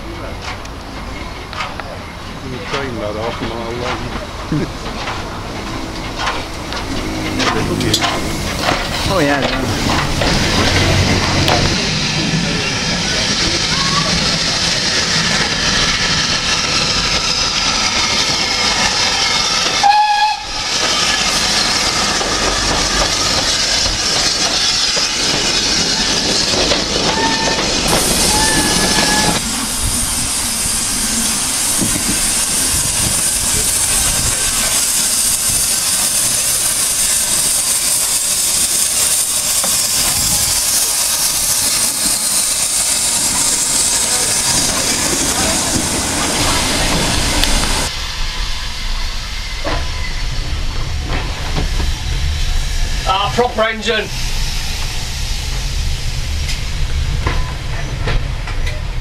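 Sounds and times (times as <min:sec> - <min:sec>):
rail noise: 0:00.0 - 0:59.0
steam locomotive hissing: 0:00.0 - 0:59.0
train whistle notes: 0:19.8 - 0:20.6, 0:28.2 - 0:29.4.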